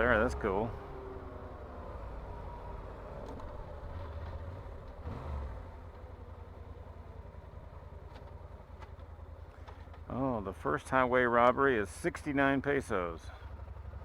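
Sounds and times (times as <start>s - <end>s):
road noise: 0.0s - 14.0s
motorcycle engine running: 13.3s - 14.0s.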